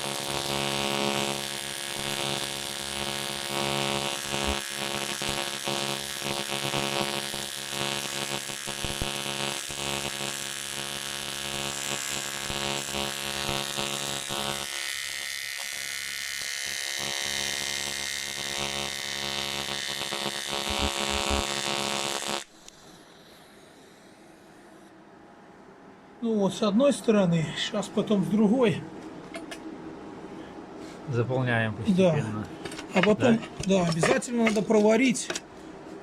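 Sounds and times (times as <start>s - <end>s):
welding arc buzzing: 0.0s - 24.7s.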